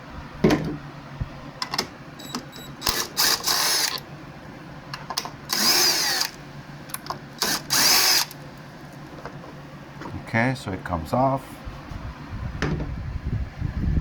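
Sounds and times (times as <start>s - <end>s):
power drill running: 2.2s - 4.0s, 5.4s - 6.4s, 7.4s - 8.4s.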